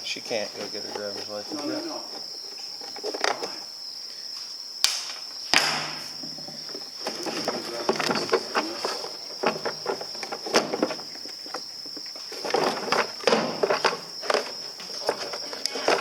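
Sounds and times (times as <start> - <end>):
high insect trill: 0.0 - 16.0
knocks and clatter of hand work: 5.6 - 16.0.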